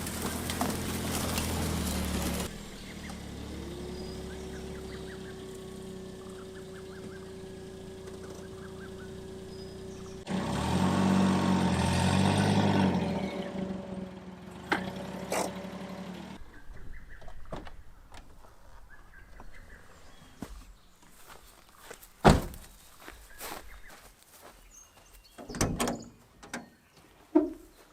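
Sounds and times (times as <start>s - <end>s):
vehicle motor running: 0.0s - 17.2s
sharp thunk: 22.2s - 22.6s.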